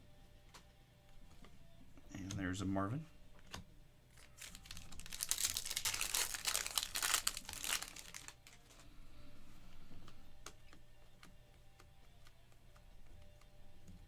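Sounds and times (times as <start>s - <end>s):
plastic foil wrapper crinkling: 4.1s - 8.8s
small ticks: 10.0s - 14.0s.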